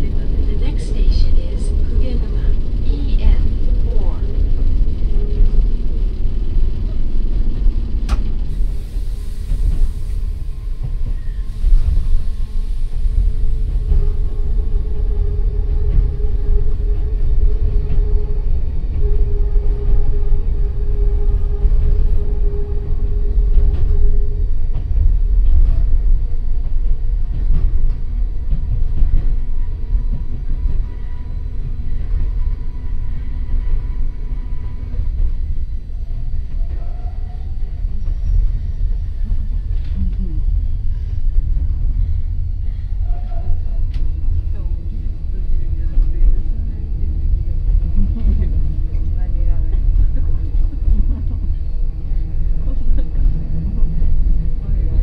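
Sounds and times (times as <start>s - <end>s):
steady motor hum: 0.0s - 9.5s
train motors and wheels rumbling: 0.0s - 55.0s.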